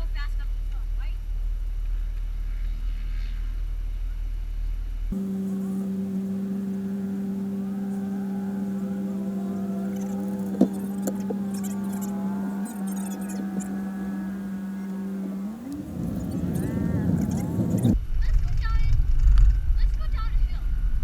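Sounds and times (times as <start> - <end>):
engine running: 5.1 - 18.0.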